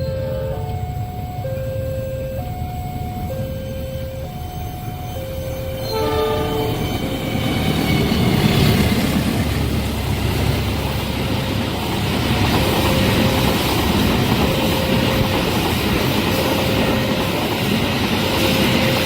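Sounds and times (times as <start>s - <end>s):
level crossing alarm: 0.0s - 7.7s, 12.2s - 19.0s
train passing with wheel clatter: 0.0s - 19.0s
train horn blast: 5.8s - 7.4s.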